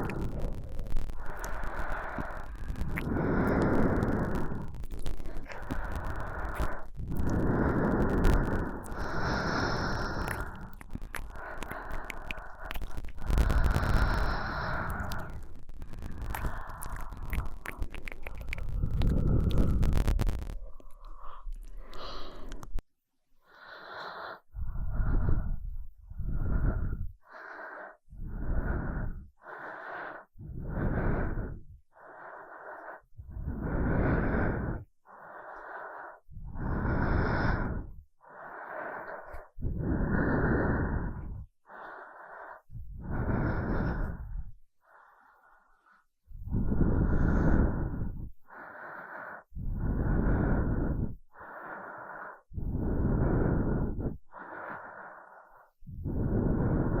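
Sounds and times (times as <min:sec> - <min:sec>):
person breathing close to microphone: 0:00.0 - 0:22.8, 0:23.4 - 0:57.0.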